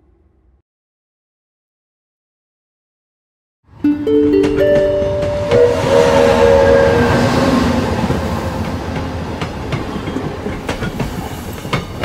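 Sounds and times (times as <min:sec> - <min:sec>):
musical jingle: 0:03.8 - 0:09.3
train rolling on rails: 0:04.0 - 0:12.0
wheels clicking over track: 0:07.8 - 0:12.0.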